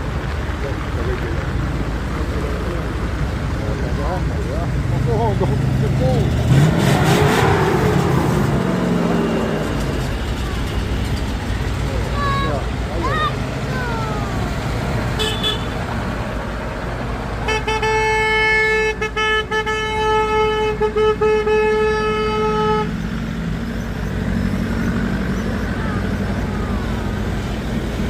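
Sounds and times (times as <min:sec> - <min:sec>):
train running rumble: 0:07.8 - 0:15.2
train horn blast: 0:17.4 - 0:23.0.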